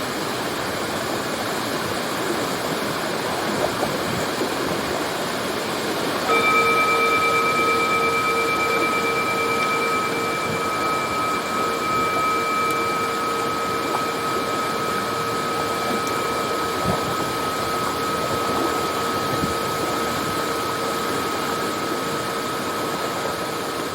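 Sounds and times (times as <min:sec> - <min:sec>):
waterfall rushing: 0:04.6 - 0:23.9
faint steady tones: 0:06.2 - 0:23.9.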